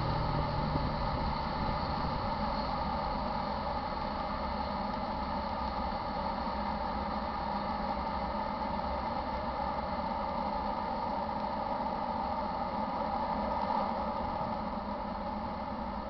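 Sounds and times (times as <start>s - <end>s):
freight train rumbling: 0.0s - 9.8s
mid-pitched hum: 0.0s - 16.0s.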